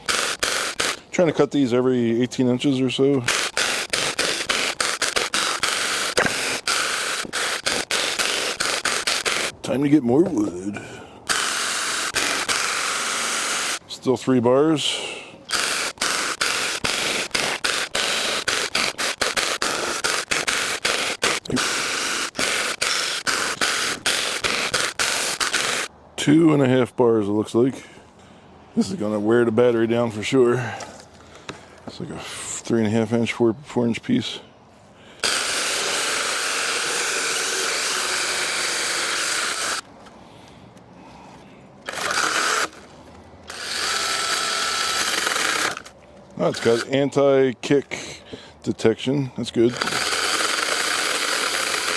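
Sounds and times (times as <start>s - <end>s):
chainsaw cutting through log: 0.0s - 1.0s, 3.3s - 9.5s, 11.3s - 13.8s, 15.5s - 25.9s, 35.2s - 39.8s, 41.9s - 42.8s, 43.5s - 45.9s, 49.7s - 51.9s.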